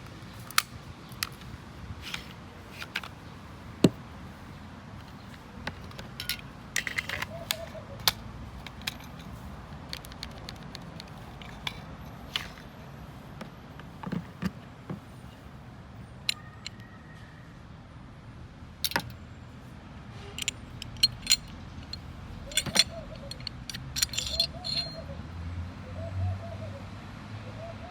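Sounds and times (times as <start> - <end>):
metallic clicks of pistol parts: 0.3 - 3.1, 5.0 - 12.7, 18.8 - 19.2, 20.4 - 25.0.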